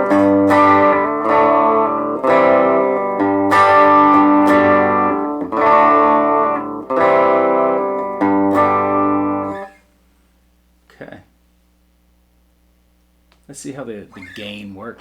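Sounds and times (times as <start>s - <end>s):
electric guitar strummed chords: 0.0s - 9.8s.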